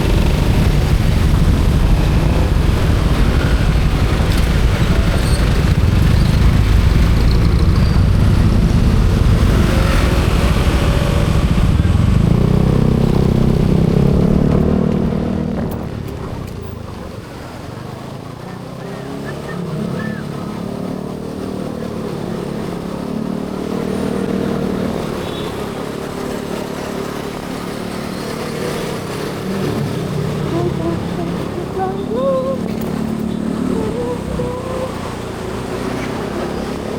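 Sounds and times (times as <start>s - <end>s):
wind on microphone: 0.0s - 16.4s
motorcycle engine: 0.0s - 36.9s.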